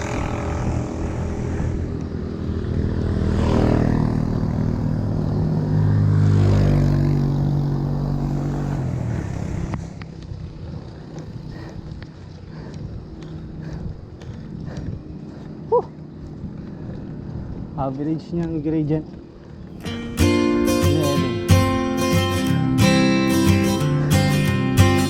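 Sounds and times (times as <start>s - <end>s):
vehicle engine passing by: 0.0s - 11.8s.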